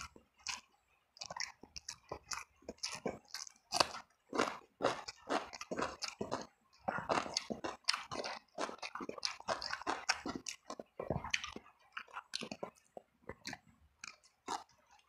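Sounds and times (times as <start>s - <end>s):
wet chewing and smacking: 0.0s - 15.0s.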